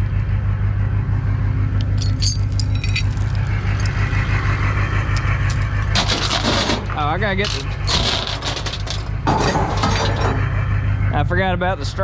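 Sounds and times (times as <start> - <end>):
truck engine droning: 0.0 - 12.0
light metallic jingling: 1.8 - 3.9, 5.4 - 6.8, 7.4 - 10.5.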